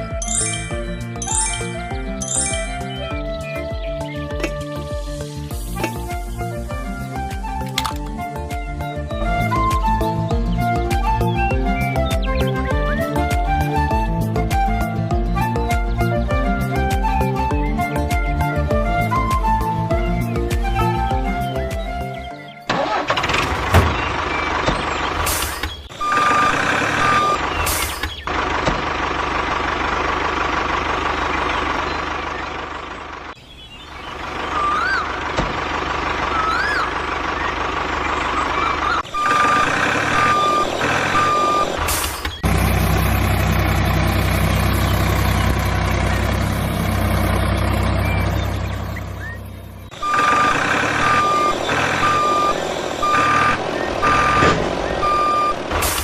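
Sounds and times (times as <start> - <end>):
truck reversing alarm beeping: 0.0 - 3.2, 23.8 - 28.2, 34.2 - 56.0
deep engine hum: 0.0 - 56.0
engine running: 0.0 - 56.0.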